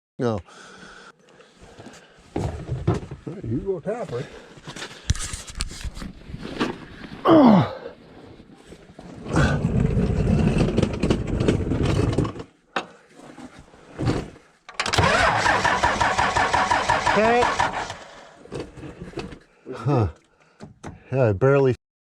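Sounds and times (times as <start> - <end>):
engine cranking by starter: 14.7 - 19.3.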